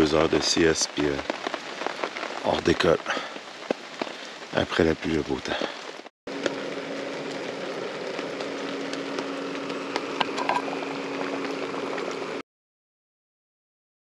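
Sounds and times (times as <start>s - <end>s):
steady rain falling: 0.0s - 12.4s
low hum: 6.3s - 12.4s.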